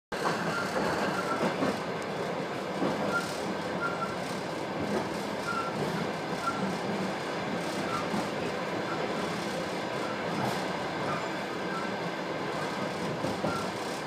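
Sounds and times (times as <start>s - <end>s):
train wheels rumbling on track: 0.1s - 14.0s
short high squeaks: 5.4s - 6.7s, 13.4s - 13.9s.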